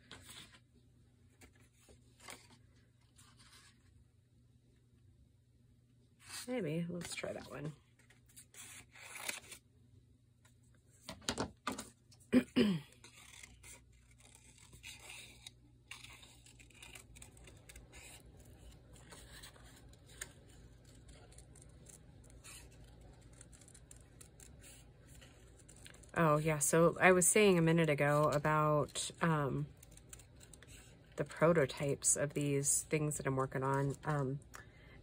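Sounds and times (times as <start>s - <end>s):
paper rustling and tearing: 7.1s - 9.6s, 13.0s - 26.2s.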